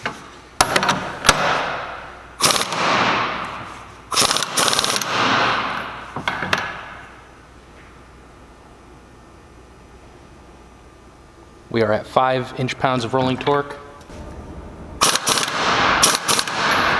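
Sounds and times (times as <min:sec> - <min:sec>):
impact wrench hammering: 0:00.6 - 0:07.0, 0:15.0 - 0:16.9.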